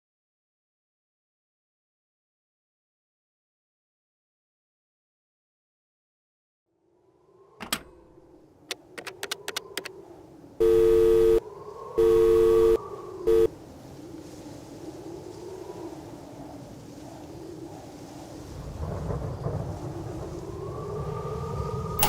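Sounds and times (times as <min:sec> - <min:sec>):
telephone tone beeps: 0:10.6 - 0:11.4, 0:12.0 - 0:13.5.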